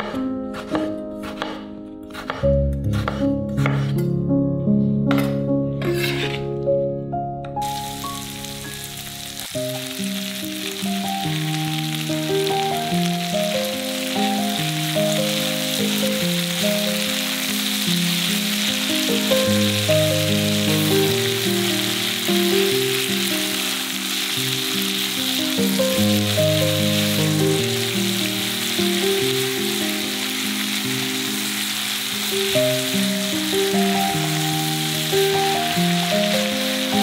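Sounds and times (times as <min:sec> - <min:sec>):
slow background music: 0:00.0 - 0:37.0
food frying in oil: 0:07.6 - 0:37.0.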